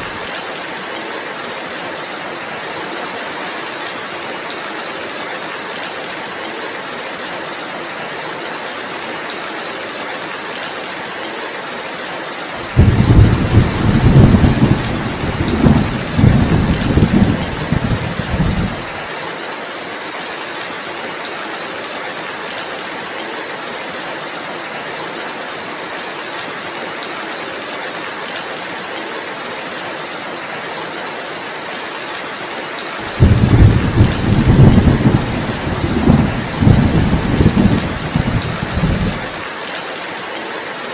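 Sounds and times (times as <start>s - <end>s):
heavy rain hiss: 0.0s - 24.0s, 31.3s - 40.9s
low thunder rumbles: 12.6s - 18.9s, 33.0s - 39.4s.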